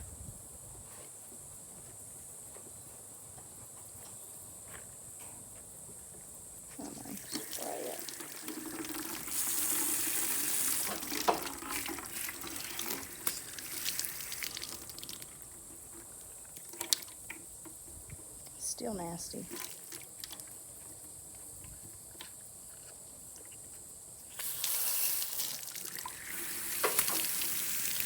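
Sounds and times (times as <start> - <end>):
water splashing into a cup: 6.8 - 15.5, 19.5 - 20.5, 24.4 - 28.0.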